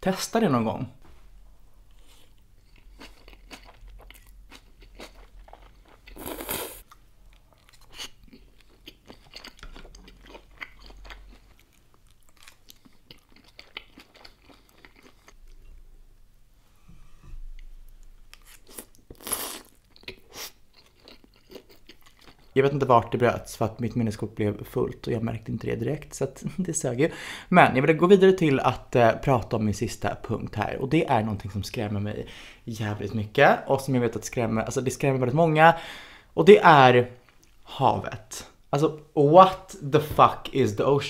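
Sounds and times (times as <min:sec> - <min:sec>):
wet chewing and crunching: 0:02.6 - 0:15.6, 0:18.0 - 0:22.6.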